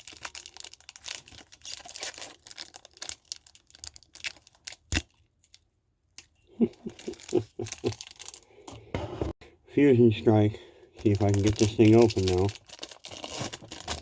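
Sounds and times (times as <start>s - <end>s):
foil wrapper crinkling and tearing: 0.0s - 5.6s, 6.2s - 8.4s, 11.0s - 14.0s.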